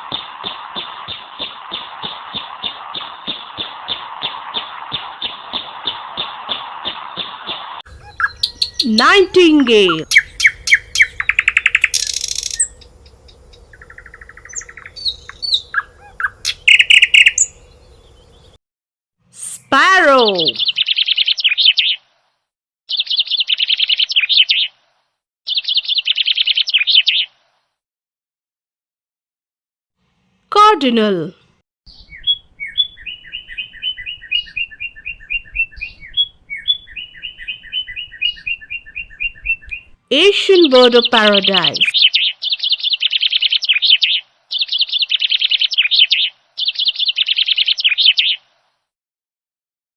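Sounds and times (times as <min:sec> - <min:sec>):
nightingale singing: 0:06.9 - 0:18.6, 0:20.2 - 0:22.0, 0:22.9 - 0:24.7, 0:25.5 - 0:27.3, 0:31.9 - 0:48.4
cardinal singing whistled notes: 0:08.0 - 0:12.8, 0:14.5 - 0:17.6, 0:31.9 - 0:40.0.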